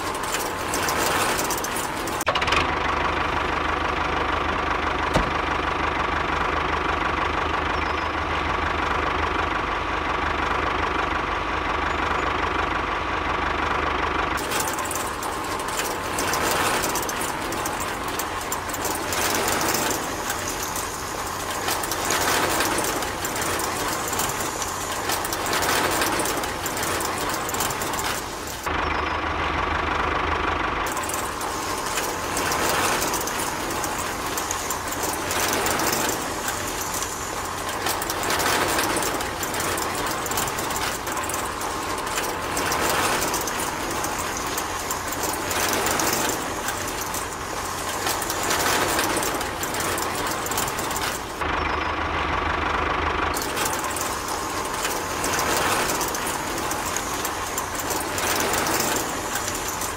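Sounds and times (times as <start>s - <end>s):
rattling clatter of drum: 0.0s - 2.6s, 14.4s - 28.7s, 30.8s - 51.4s, 53.3s - 59.9s.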